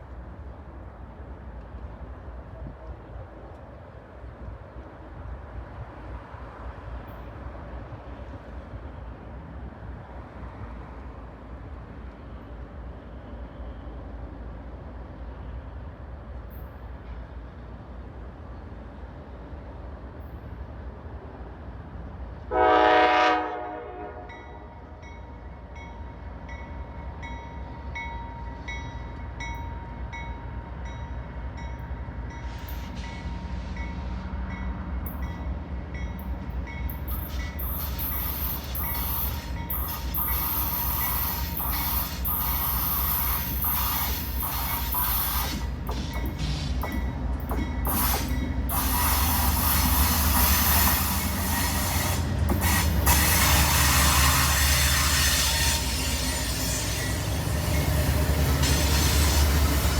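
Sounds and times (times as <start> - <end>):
train horn blast: 22.5 - 24.8, 47.9 - 57.6
diesel locomotive rumble: 28.5 - 59.9.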